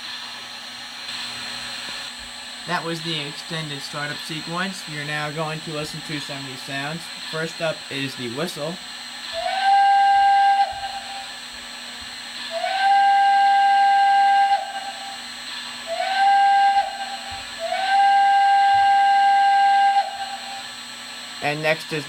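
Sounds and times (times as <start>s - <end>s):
steady hiss: 1.0s - 22.0s
steam whistle blasts: 9.2s - 11.4s, 12.4s - 20.9s.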